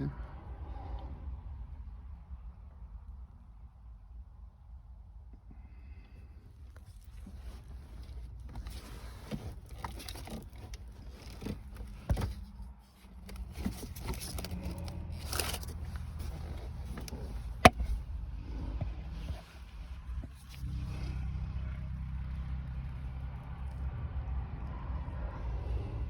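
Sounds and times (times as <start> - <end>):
rustling scrape: 6.8 - 20.7.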